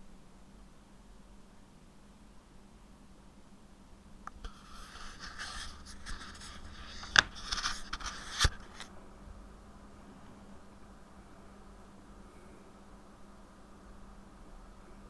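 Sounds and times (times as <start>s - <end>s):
scraping and rustling: 4.3s - 8.9s.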